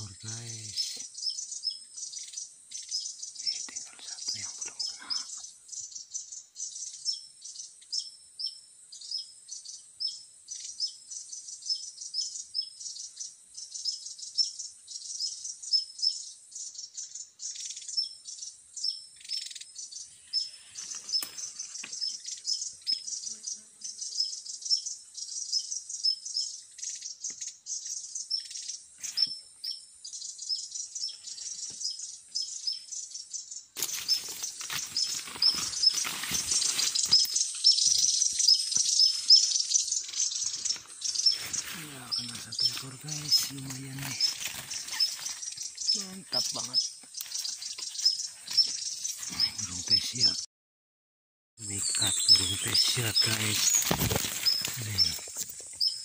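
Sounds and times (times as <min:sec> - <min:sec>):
bird chirping: 0:00.0 - 0:50.5, 0:51.6 - 0:56.0
leaves and branches rustling: 0:20.3 - 0:22.2, 0:33.8 - 0:49.4, 0:51.7 - 0:55.9.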